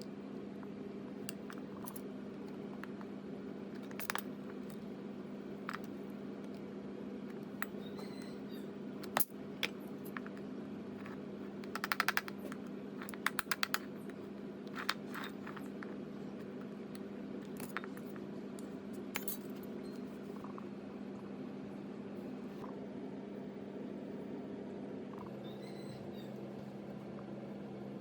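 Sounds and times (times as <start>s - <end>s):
steady low hum: 0.0s - 28.0s
small metal parts clinking: 3.8s - 4.8s, 14.7s - 15.8s, 19.1s - 19.6s.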